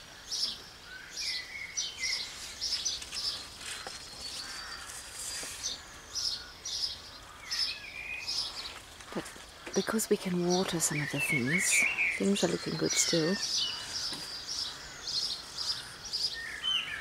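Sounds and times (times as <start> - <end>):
small birds chirping: 0.0 - 17.0
whistled bird notes: 9.7 - 17.0.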